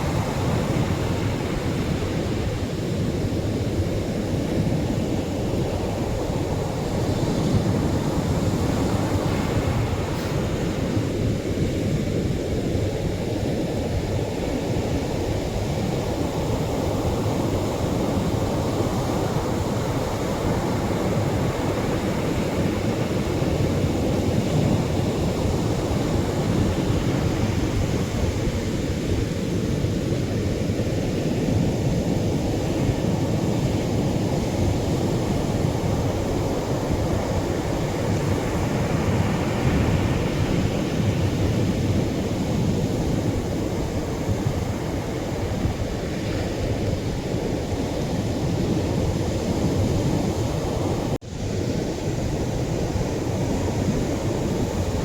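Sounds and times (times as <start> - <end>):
surf breaking on shore: 5.4 - 11.4.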